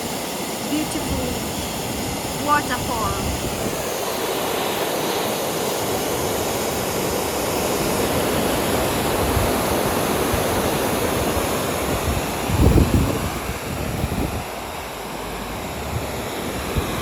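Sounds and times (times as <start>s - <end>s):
waterfall rushing: 0.0s - 17.0s
wind buffeting microphone: 0.8s - 4.0s, 8.8s - 17.0s.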